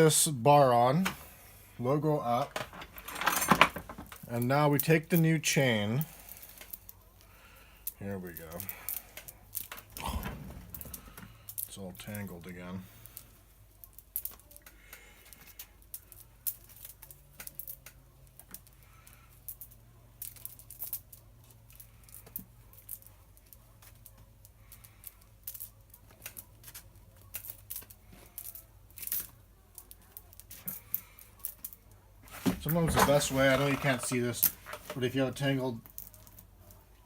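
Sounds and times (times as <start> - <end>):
chain links rattling: 2.6 - 3.9.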